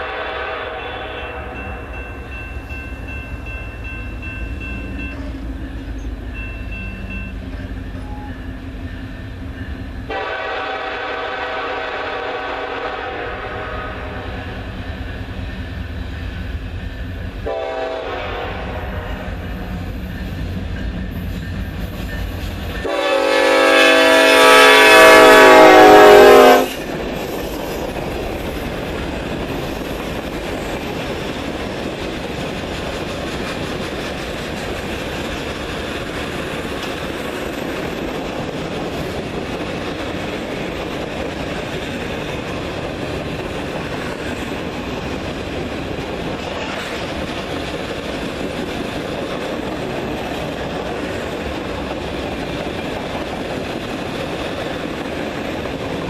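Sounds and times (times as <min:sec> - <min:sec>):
locomotive air horn: 0:00.0 - 0:01.8, 0:10.1 - 0:14.5, 0:17.4 - 0:19.4, 0:22.8 - 0:26.8
freight cars rumbling on rails: 0:00.0 - 0:56.0.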